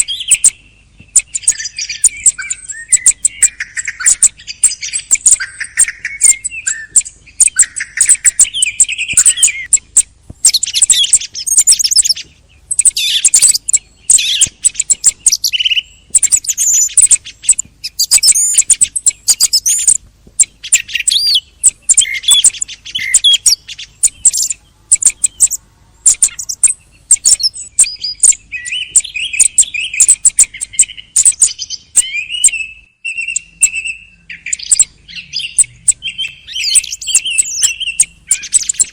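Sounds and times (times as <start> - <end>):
thrushes chirping and singing: 0.0 - 38.9.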